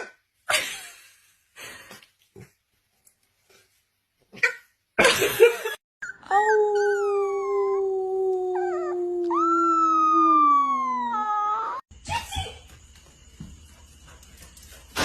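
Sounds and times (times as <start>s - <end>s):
dog howling: 6.3s - 11.8s.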